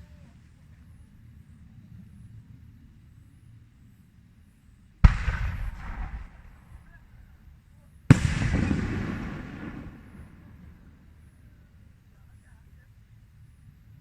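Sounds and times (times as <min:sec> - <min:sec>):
fireworks bangs with echo: 0:05.0 - 0:11.6.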